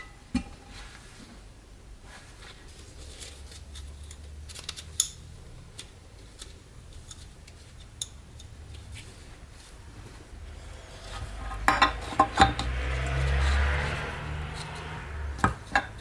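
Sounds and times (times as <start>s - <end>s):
metallic clicks of small parts: 3.7s - 8.5s.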